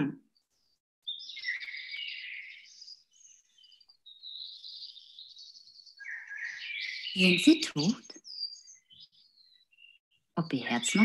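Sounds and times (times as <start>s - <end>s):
birds chirping and twittering: 0.0s - 11.0s.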